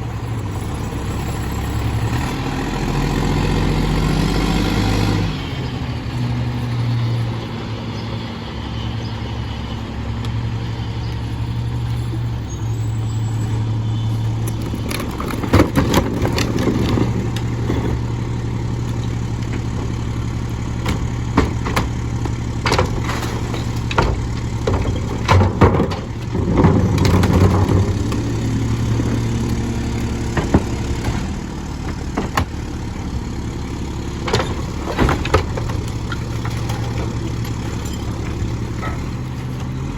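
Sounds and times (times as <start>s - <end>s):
diesel engine running: 0.0s - 39.9s
clattering: 14.4s - 18.2s, 20.8s - 32.6s, 34.2s - 39.8s
metal clanks and bangs: 19.0s - 32.9s, 34.1s - 39.8s.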